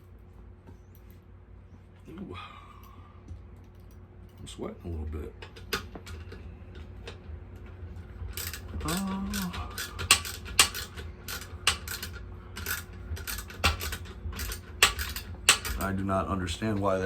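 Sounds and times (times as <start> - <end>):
ratchet wrench clicking: 8.4 - 15.9.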